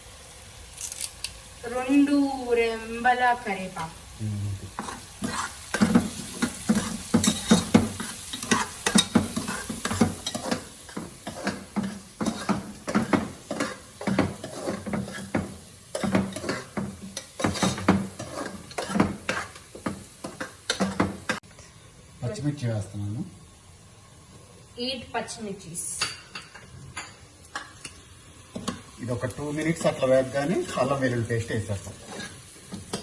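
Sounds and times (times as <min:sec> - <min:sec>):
oil sizzling: 0:00.0 - 0:21.4, 0:23.3 - 0:33.0
utensil scraping pan: 0:04.7 - 0:21.4.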